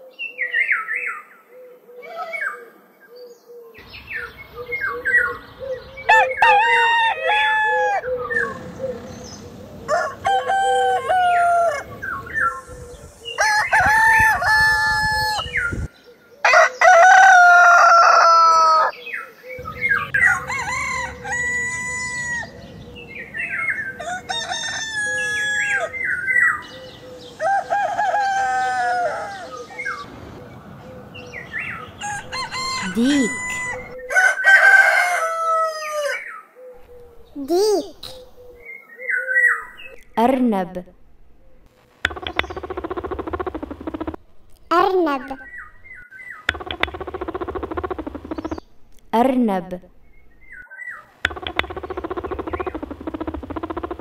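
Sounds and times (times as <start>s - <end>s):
roosters crowing: 3.8s - 37.4s, 45.4s - 48.6s, 51.3s - 54.0s.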